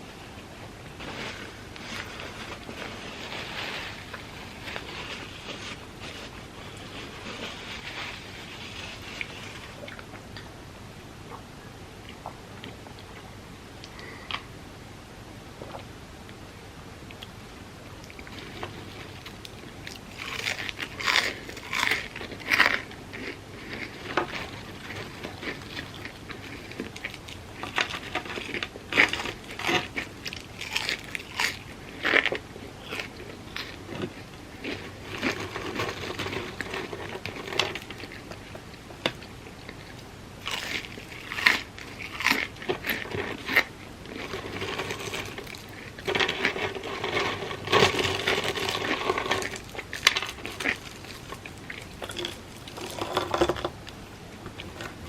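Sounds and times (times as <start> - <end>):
soft chewing: 17.1 - 55.0
crunchy bites of fried food: 19.2 - 38.2, 40.4 - 53.8.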